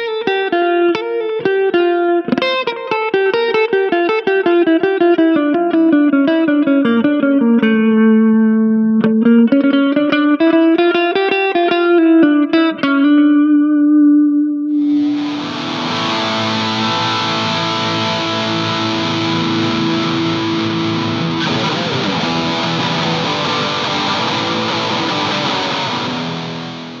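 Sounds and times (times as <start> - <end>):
distorted electric guitar chord: 14.7 - 27.0.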